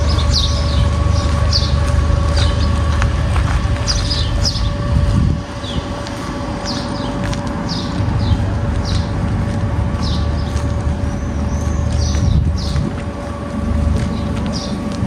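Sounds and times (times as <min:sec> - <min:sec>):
bird chirping: 0:00.0 - 0:02.8, 0:03.9 - 0:04.8
low rumble: 0:00.0 - 0:15.0
machine hum: 0:00.0 - 0:15.0.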